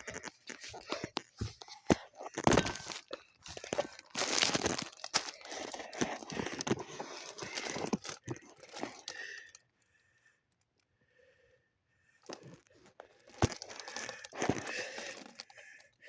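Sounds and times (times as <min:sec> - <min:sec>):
crinkling rustling noise: 0:00.0 - 0:09.6, 0:12.3 - 0:16.0.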